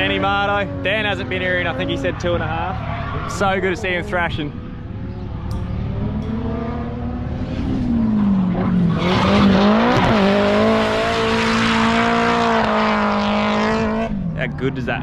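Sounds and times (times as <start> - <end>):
car engine revving: 0.0 - 15.0
tyre screech: 1.7 - 4.0.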